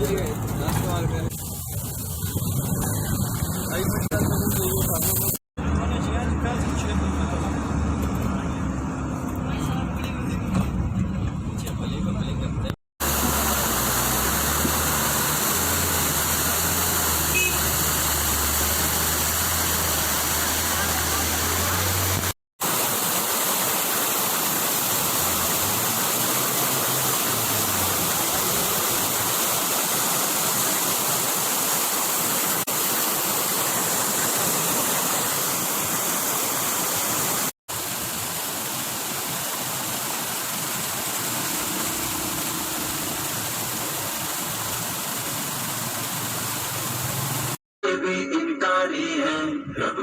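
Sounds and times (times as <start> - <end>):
waterfall rushing: 13.0 - 47.6.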